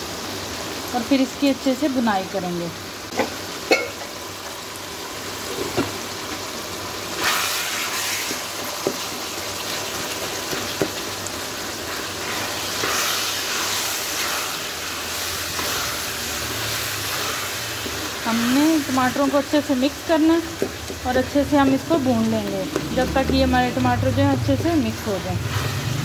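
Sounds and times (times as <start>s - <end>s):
meat and tomatoes sizzling in a pan: 0.0s - 26.0s
wooden spatula stirring and scraping: 11.8s - 19.2s, 20.4s - 24.2s
spatula knocking on a pan: 20.5s - 23.6s.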